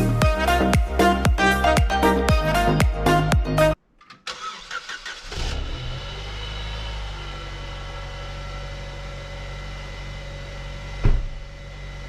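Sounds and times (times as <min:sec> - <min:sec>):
car engine cranking and idling: 0:04.0 - 0:12.0.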